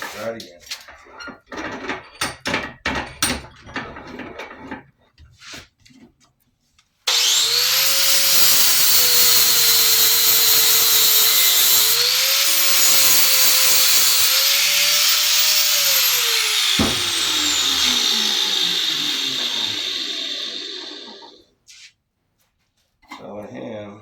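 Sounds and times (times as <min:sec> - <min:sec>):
motor whine winding down: 0:07.1 - 0:21.4
power tool running on metal: 0:07.1 - 0:21.4.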